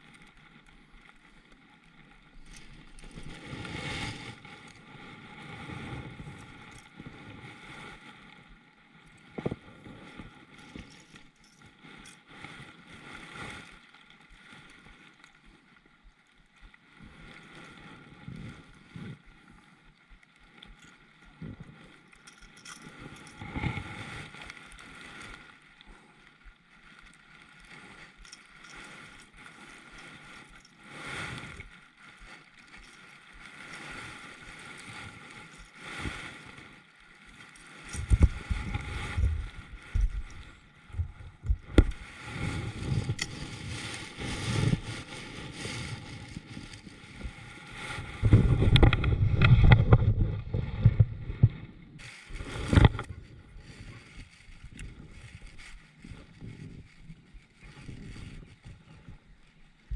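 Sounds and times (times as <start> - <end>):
water moving around kayak: 0.0 - 59.9
wind buffeting microphone: 38.0 - 57.0.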